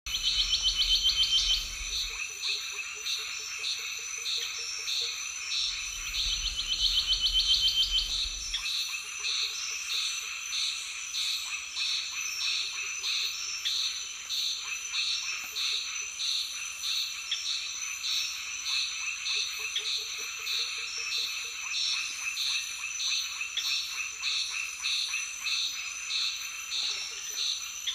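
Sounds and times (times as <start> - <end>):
low rumble: 0.1 - 2.2, 5.6 - 8.6.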